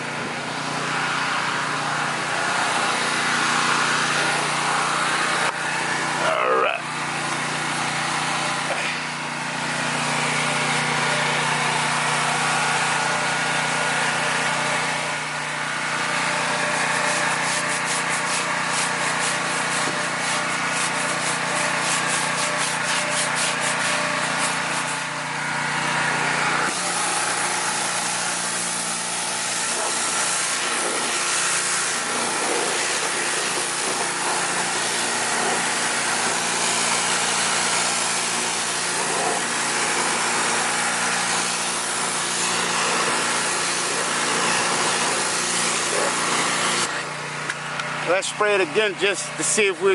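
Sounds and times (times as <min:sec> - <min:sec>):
pressure washer motor hum and hiss: 0:00.0 - 0:49.9
fast rubbing strokes: 0:16.8 - 0:25.0.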